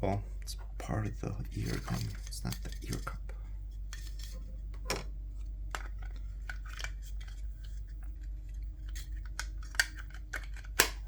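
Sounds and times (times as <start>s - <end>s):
plastic parts clicking: 8.9s - 11.0s.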